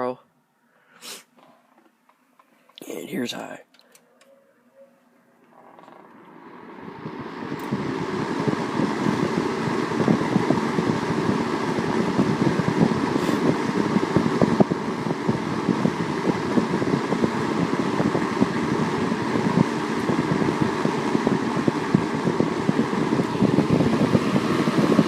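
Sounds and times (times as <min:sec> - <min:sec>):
box fan rushing air: 0:05.4 - 0:25.0.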